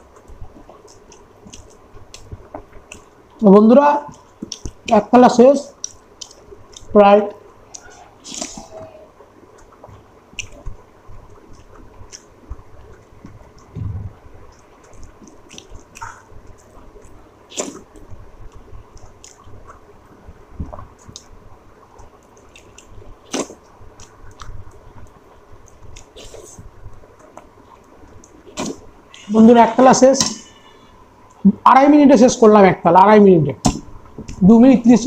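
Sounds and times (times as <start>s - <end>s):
mouth smacks and clicks: 0.0s - 3.2s, 4.1s - 5.1s, 5.7s - 7.0s, 7.7s - 8.9s, 9.5s - 19.9s, 20.6s - 29.4s
person chewing wetly: 0.0s - 3.4s, 4.0s - 5.0s, 5.7s - 7.0s, 7.6s - 29.4s.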